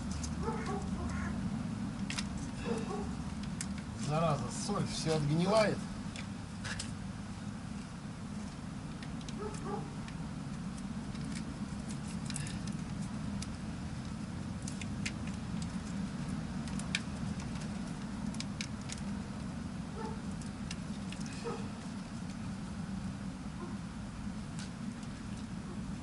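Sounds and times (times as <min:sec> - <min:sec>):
clicks and crackles of wiring: 0:02.0 - 0:02.6, 0:03.2 - 0:07.0, 0:08.4 - 0:19.5, 0:20.2 - 0:22.4.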